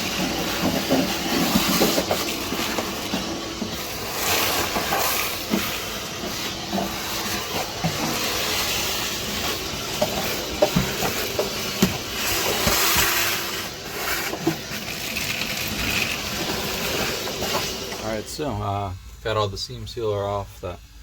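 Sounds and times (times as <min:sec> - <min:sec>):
hissing scrape on steel: 0:00.0 - 0:18.0.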